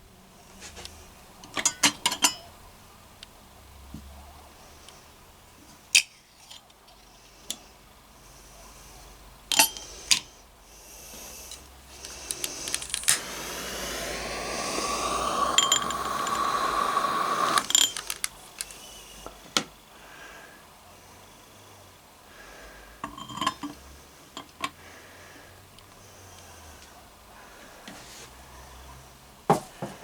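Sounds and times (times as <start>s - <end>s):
kettle clinking: 1.5s - 2.5s, 14.4s - 18.3s, 23.0s - 23.8s
tap water filling kettle: 14.6s - 18.2s.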